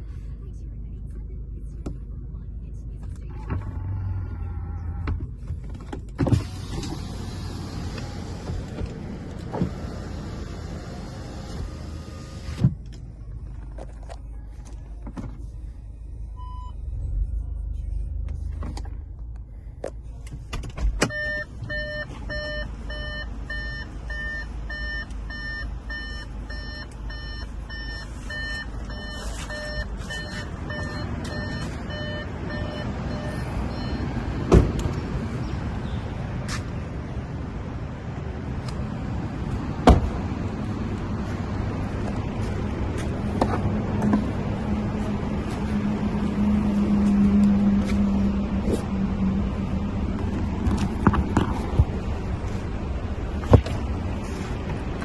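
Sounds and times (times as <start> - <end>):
low steady rumble: 0.0 - 35.3, 36.9 - 55.0
car warning chime beeping: 16.4 - 17.6, 21.0 - 34.5.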